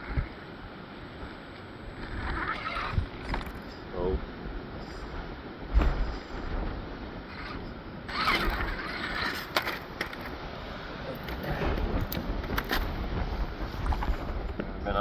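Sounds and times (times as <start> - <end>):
wind buffeting microphone: 0.0 - 15.0
electric motor whirring: 7.3 - 9.8.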